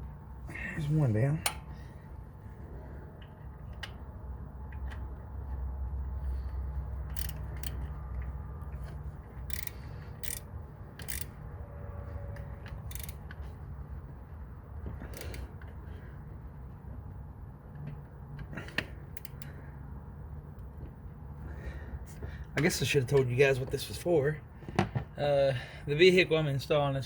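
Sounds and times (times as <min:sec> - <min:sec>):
low steady rumble: 0:00.0 - 0:27.0
ratchet metal clicks and knocks: 0:07.0 - 0:11.4, 0:12.4 - 0:13.5, 0:19.1 - 0:19.5.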